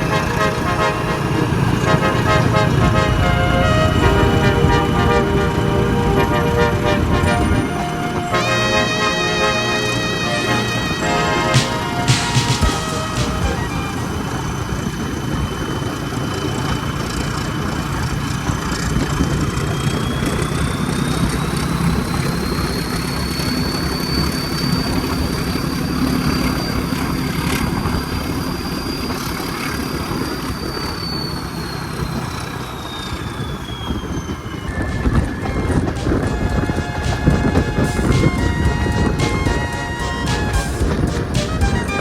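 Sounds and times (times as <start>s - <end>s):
high whine: 0.0s - 16.4s, 33.9s - 42.0s
diesel locomotive engine humming: 0.0s - 42.0s.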